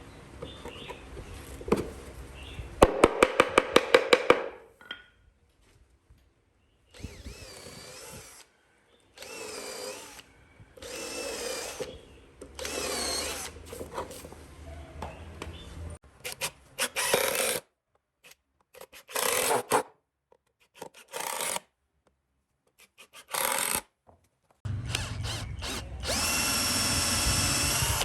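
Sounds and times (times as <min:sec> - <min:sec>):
woodworking power tool whining: 0:06.9 - 0:13.7, 0:24.7 - 0:28.0.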